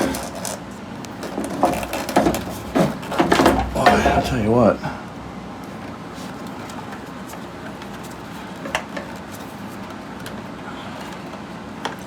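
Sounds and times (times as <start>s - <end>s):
plastic parts clicking and knocking: 0.0s - 4.0s, 5.8s - 12.0s.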